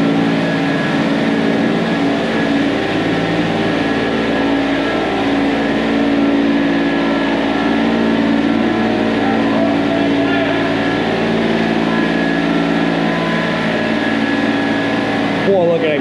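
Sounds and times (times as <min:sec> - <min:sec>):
heavy equipment engine running: 0:00.0 - 0:16.0.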